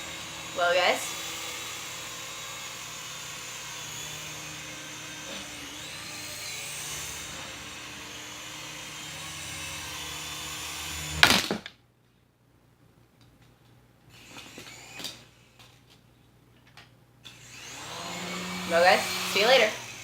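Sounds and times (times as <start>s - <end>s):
toy helicopter motor whirring: 0.0s - 11.3s, 14.1s - 15.8s, 17.3s - 20.0s.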